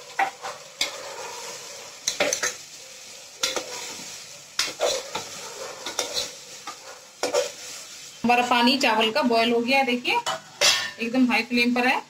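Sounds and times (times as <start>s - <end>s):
vegetables sizzling in hot oil: 0.0s - 12.0s
ladle scraping a pot: 0.1s - 2.6s, 3.4s - 7.9s.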